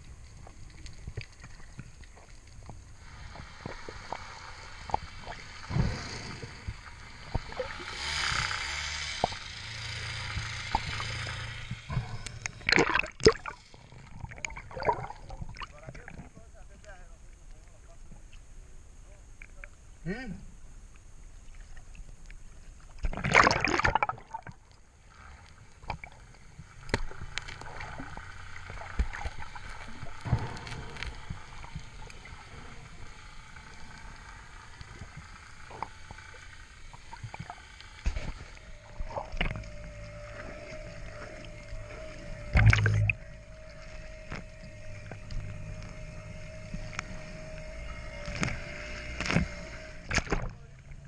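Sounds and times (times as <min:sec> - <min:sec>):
steady hum: 0:00.0 - 0:51.0
water sloshing around boat: 0:11.8 - 0:18.0.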